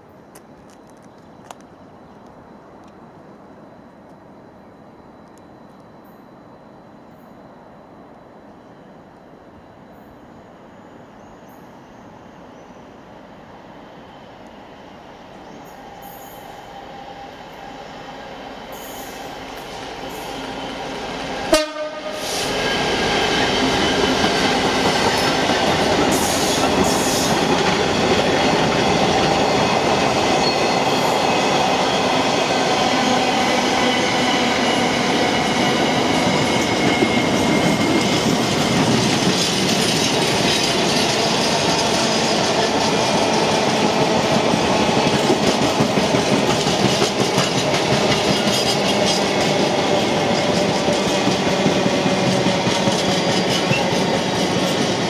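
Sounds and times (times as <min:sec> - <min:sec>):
train wheels rumbling on rail: 0:14.0 - 0:55.0
wheels clacking over rail joints: 0:33.9 - 0:55.0.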